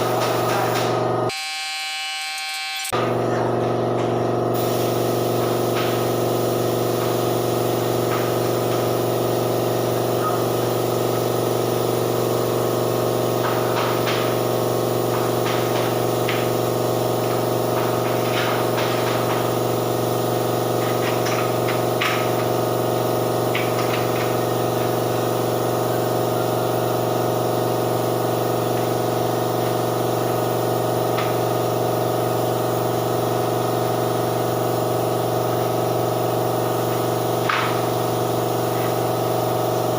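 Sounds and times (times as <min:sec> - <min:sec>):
spray equipment motor hum: 0:02.2 - 0:39.9
hiss of spraying: 0:04.6 - 0:26.0.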